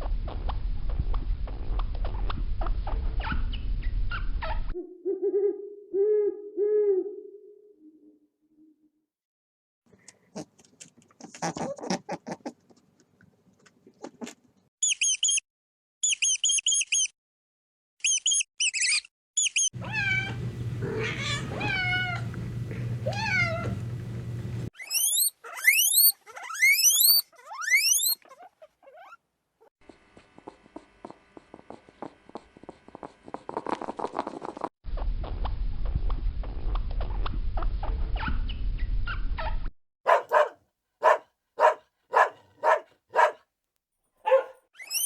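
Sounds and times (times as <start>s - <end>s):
short high animal chirps: 16.0s - 17.1s, 24.8s - 28.2s.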